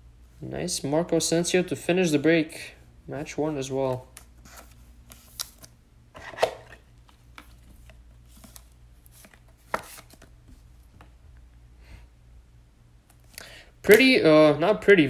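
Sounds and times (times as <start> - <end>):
trading cards handled on table: 3.9 - 11.1.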